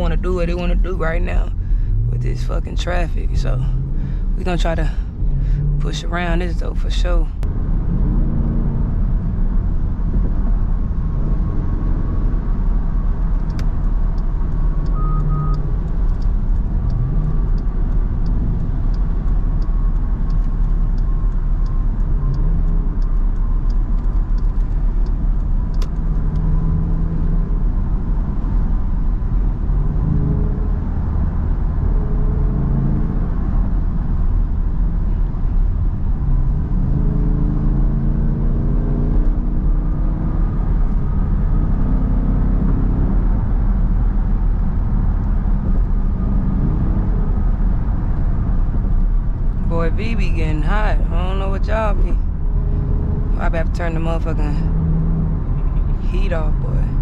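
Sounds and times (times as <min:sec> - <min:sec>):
engine and road rumble: 0:00.0 - 0:57.0
short beep: 0:14.9 - 0:15.6.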